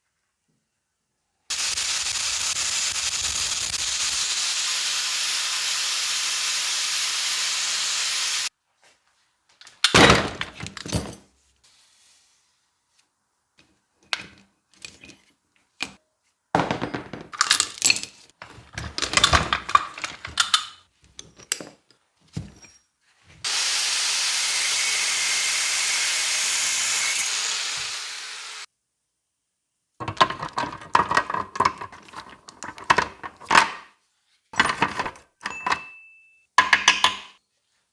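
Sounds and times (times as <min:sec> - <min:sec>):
steady hissing tool: 0:01.5 - 0:08.5, 0:23.4 - 0:28.7.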